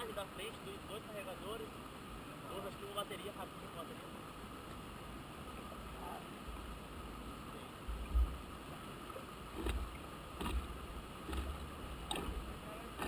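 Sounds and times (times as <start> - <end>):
sharp knocks: 9.6 - 12.4.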